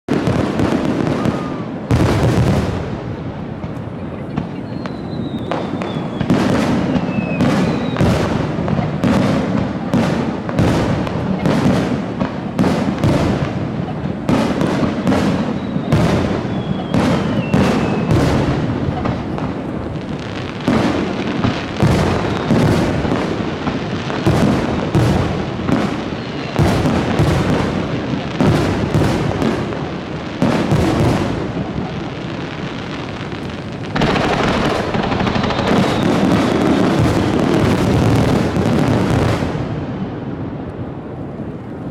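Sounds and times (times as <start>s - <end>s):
faint falling whistle: 4.6s - 6.3s, 6.9s - 8.1s, 15.4s - 18.1s, 35.3s - 36.9s
firework shell bursts: 33.8s - 37.3s.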